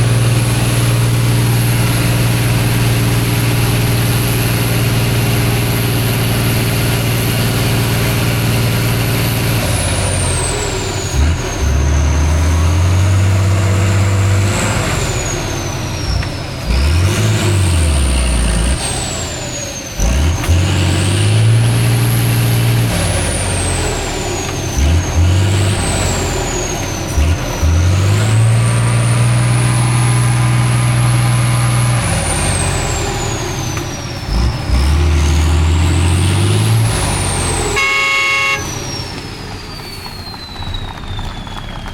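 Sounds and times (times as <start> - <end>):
diesel truck engine revving: 0.0 - 41.9.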